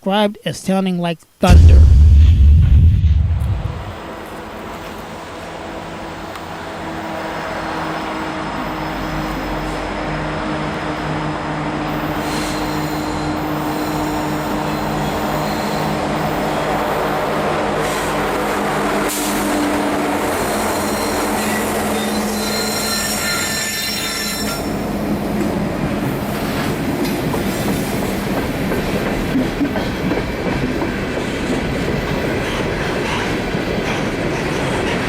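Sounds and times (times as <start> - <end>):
high-pitched wheel squeal: 20.6 - 24.7.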